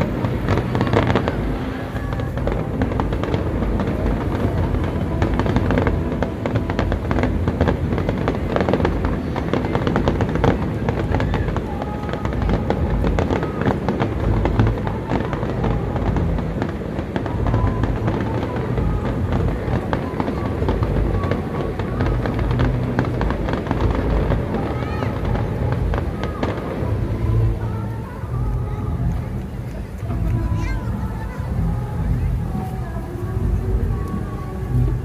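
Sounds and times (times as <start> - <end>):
fireworks bangs and crackles: 0.0 - 35.0
music playing: 0.0 - 35.0.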